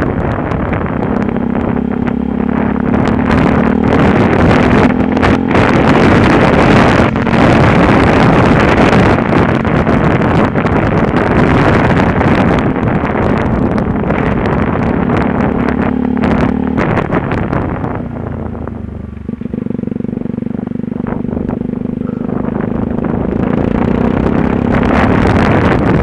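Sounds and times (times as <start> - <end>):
motorcycle engine running: 0.0 - 26.0
wind rushing over microphone: 0.0 - 26.0.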